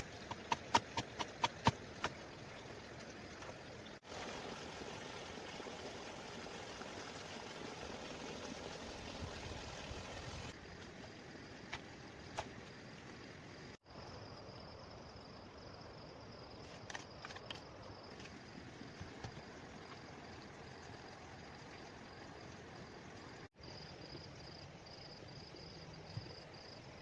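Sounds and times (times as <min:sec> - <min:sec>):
rushing water: 0:00.0 - 0:13.2.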